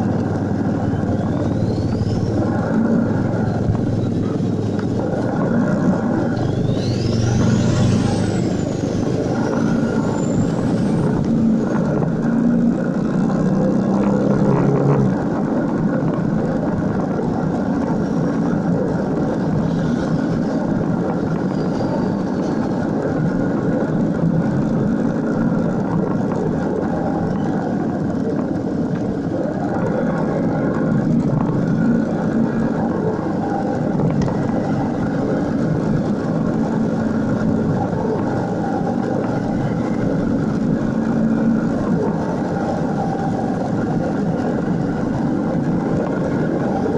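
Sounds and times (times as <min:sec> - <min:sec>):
motorcycle engine running: 0:00.0 - 0:46.9
road and wind noise: 0:00.0 - 0:46.9.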